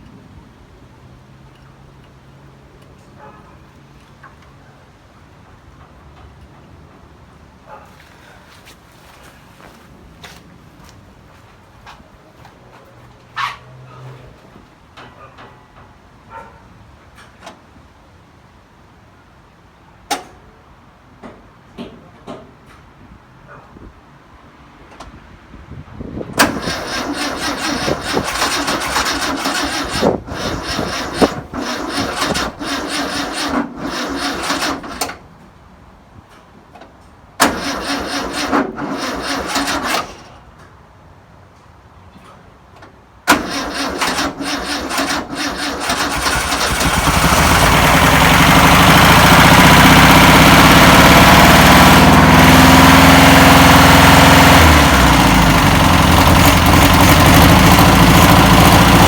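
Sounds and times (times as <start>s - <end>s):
engine running steadily: 26.4s - 35.2s, 43.3s - 59.0s
starter cranking engine: 26.4s - 35.2s, 37.4s - 40.3s, 43.3s - 59.0s.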